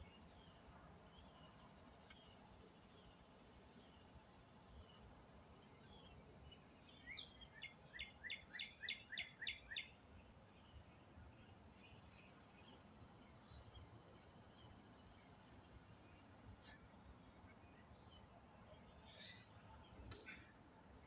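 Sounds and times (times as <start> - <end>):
bird chirping: 0.0 - 20.6.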